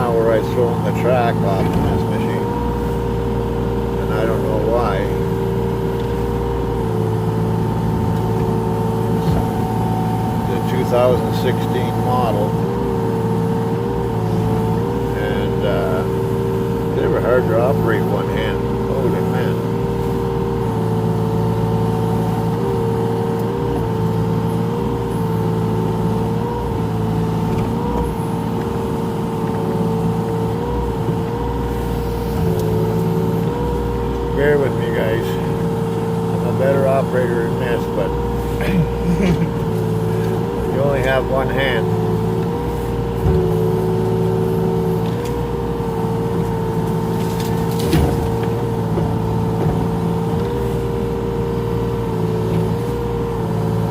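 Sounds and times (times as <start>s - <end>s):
excavator engine under load: 0.0s - 53.9s
hydraulic whine: 0.0s - 53.9s
machine clunk: 47.3s - 50.0s.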